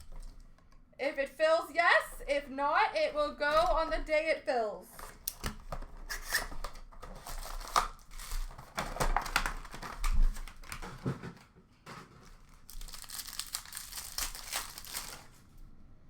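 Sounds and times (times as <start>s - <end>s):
foil wrappers tearing and crinkling: 6.0s - 11.2s, 12.0s - 15.5s.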